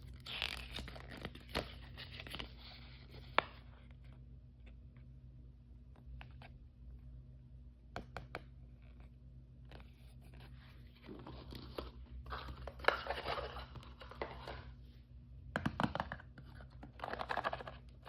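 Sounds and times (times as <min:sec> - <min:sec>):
plastic packaging crinkling and tearing: 0:00.0 - 0:02.5.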